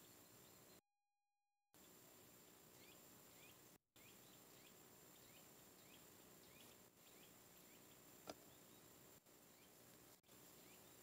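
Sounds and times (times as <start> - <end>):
faint bird chirping: 0.0 - 0.8, 1.8 - 11.0
woodland ambience: 0.0 - 0.8, 1.8 - 11.0.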